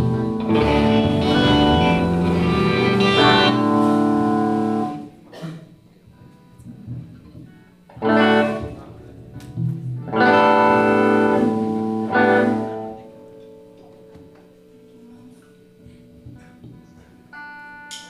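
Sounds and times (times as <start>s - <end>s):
live guitar music: 0.0s - 5.3s, 6.0s - 18.0s.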